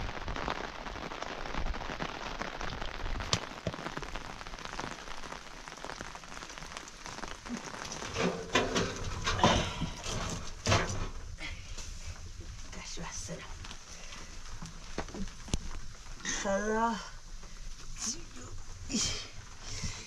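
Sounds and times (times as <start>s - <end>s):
steady rain: 0.0s - 20.0s.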